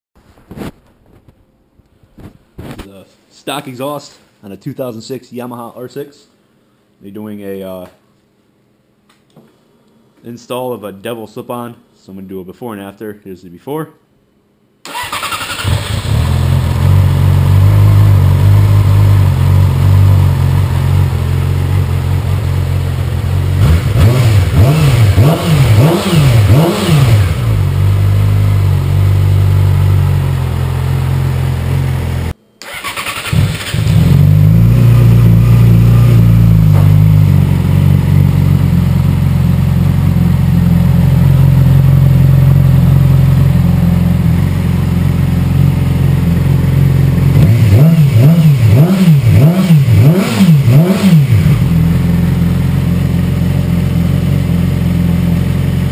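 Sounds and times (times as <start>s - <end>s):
motorcycle engine idling: 15.7s - 24.6s, 33.7s - 48.6s, 51.3s - 55.9s.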